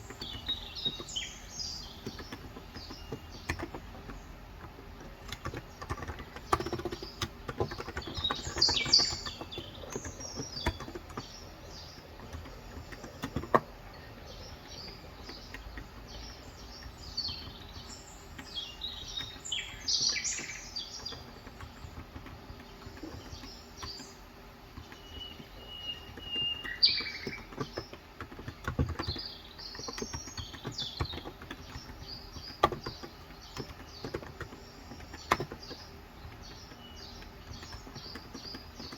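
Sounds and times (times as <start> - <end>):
keyboard keystrokes clicking: 0.0 - 24.1
small birds chirping: 0.0 - 38.9.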